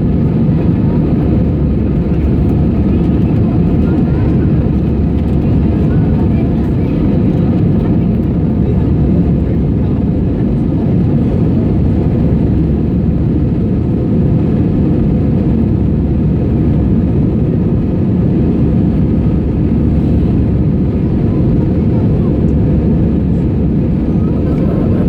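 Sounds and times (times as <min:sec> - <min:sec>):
jet engines roaring in cabin: 0:00.0 - 0:25.0.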